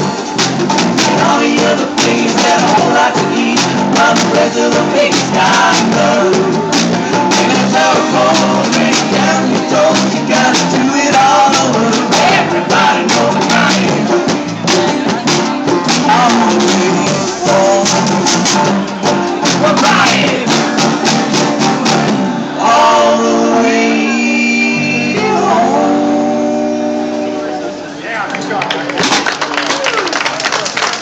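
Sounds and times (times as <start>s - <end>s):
band playing: 0.0s - 29.8s
person singing: 1.0s - 18.7s, 19.3s - 20.9s, 22.6s - 27.5s.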